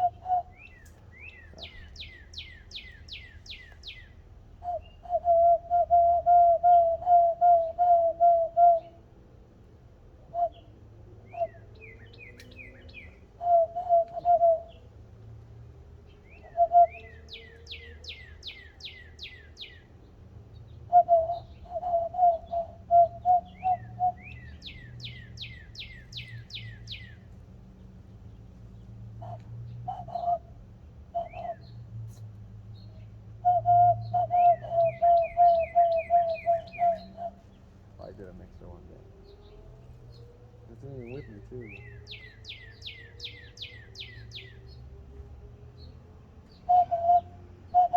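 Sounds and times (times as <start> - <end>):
low whistled bird-like notes: 0.0 - 9.0, 20.9 - 27.2, 33.4 - 45.2.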